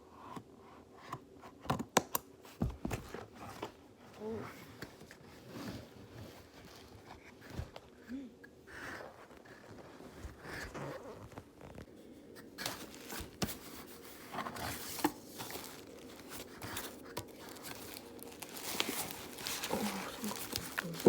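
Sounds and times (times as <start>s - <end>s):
packaging rustling and crinkling: 9.3s - 21.0s
packaging tearing: 14.7s - 21.0s.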